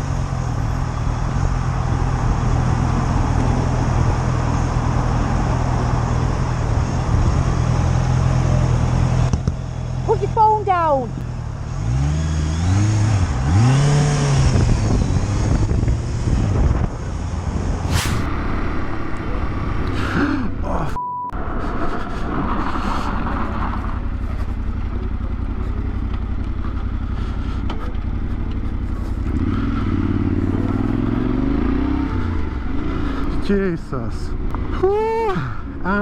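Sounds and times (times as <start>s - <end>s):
motorcycle engine revving: 0.0s - 20.7s, 21.8s - 36.0s
short beep: 21.0s - 21.4s.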